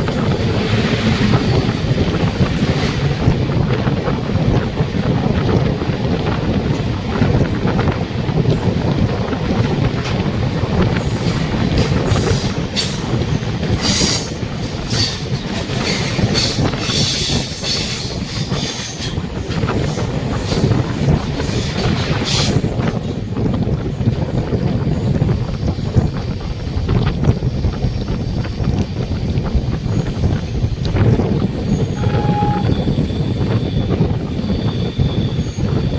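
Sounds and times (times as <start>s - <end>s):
train wheels rumbling on rail: 0.0s - 35.9s
high-pitched squeals and hisses: 31.7s - 33.8s.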